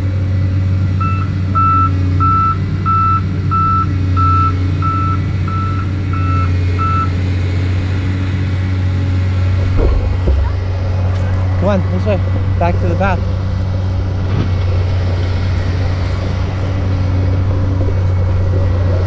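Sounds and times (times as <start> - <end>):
low engine hum: 0.0 - 19.0
truck reversing alarm beeping: 1.0 - 7.3.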